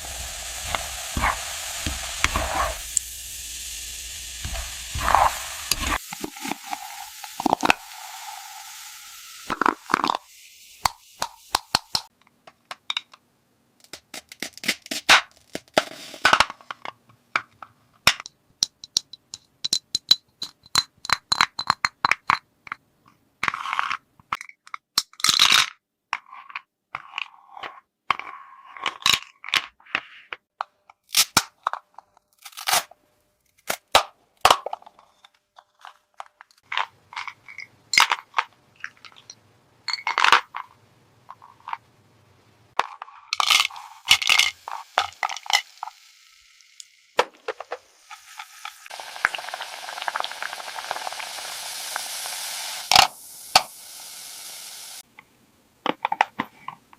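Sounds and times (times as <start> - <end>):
steady hiss: 0.0 - 12.1, 43.4 - 55.0.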